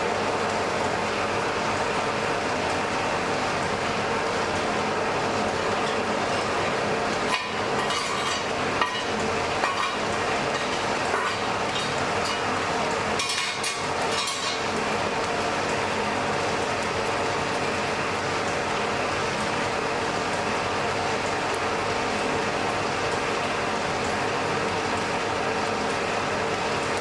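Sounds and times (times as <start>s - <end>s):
crackling and sizzling: 3.6s - 17.2s.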